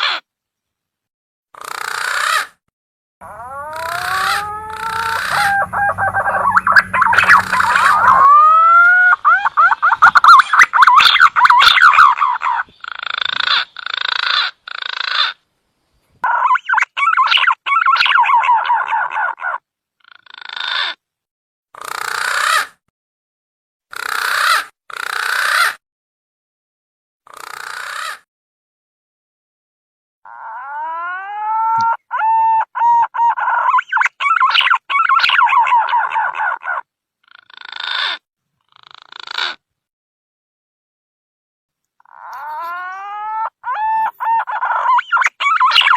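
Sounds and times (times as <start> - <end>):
harsh croaking bird calls: 1.5 - 2.6, 3.2 - 15.5, 16.2 - 21.0, 21.8 - 22.8, 23.9 - 25.8, 27.2 - 28.3, 30.2 - 39.7, 42.0 - 45.9
wavering whistled bird calls: 3.3 - 12.8, 16.4 - 18.6, 31.7 - 36.1, 43.7 - 45.9
whistled bird call lure: 3.4 - 9.2, 43.8 - 45.9.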